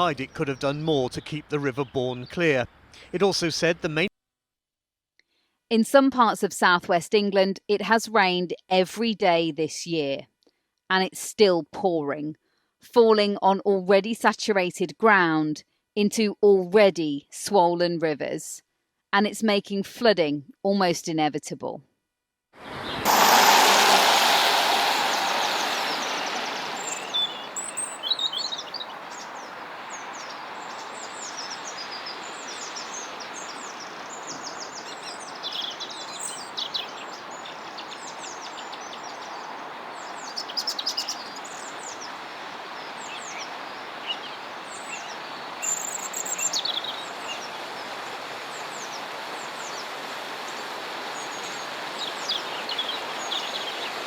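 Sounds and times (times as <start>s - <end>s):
small birds chirping: 0.0s - 4.0s, 22.7s - 54.0s
river water flowing: 22.6s - 54.0s.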